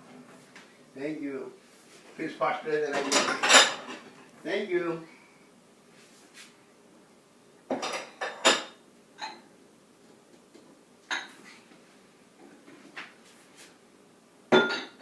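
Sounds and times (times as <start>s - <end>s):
dishes and cutlery clinking: 2.9s - 4.2s, 7.7s - 9.5s, 10.5s - 11.4s, 14.5s - 15.0s.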